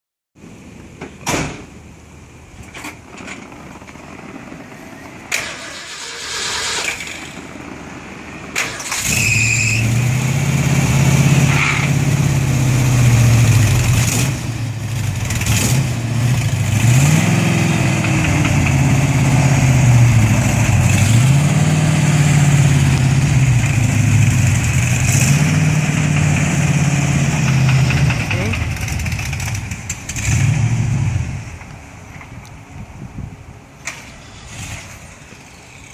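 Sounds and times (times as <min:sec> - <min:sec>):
vee eight engine starting and revving: 0:05.2 - 0:31.7, 0:33.8 - 0:35.9.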